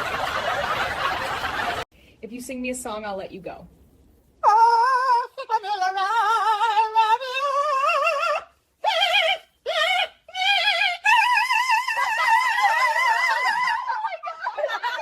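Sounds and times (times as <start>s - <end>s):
high voice singing with vibrato: 4.4s - 14.2s.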